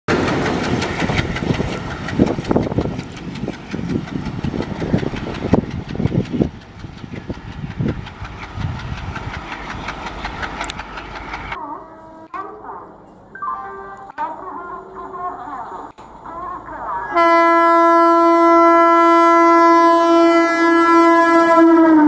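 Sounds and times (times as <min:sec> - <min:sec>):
train clattering on rails: 0:00.1 - 0:13.2.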